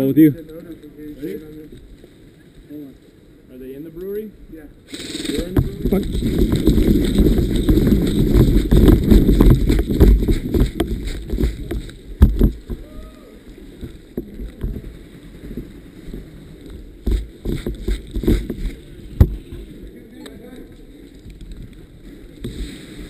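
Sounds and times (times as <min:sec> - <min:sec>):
rumbling wind on microphone: 0:05.1 - 0:13.2
microphone handling knocks: 0:05.4 - 0:12.8, 0:17.0 - 0:19.6
sharp clicks and knocks: 0:05.4 - 0:12.8.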